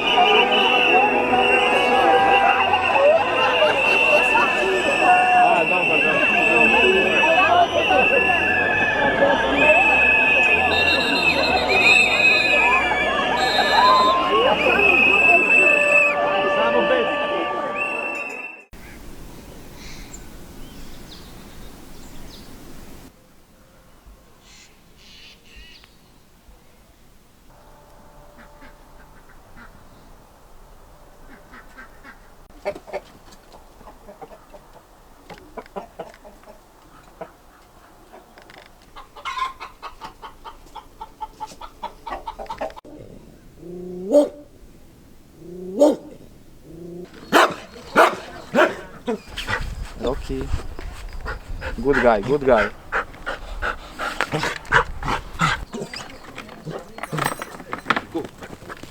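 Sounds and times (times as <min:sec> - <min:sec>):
low wind rumble: 0:18.8 - 0:23.1, 0:26.3 - 0:32.6, 0:43.0 - 0:55.7
small birds chirping: 0:18.8 - 0:23.1, 0:47.1 - 0:57.1
chickens clucking: 0:31.3 - 0:42.8, 0:51.1 - 0:57.0
dog barking: 0:44.1 - 0:44.4, 0:45.8 - 0:46.1, 0:47.3 - 0:49.6.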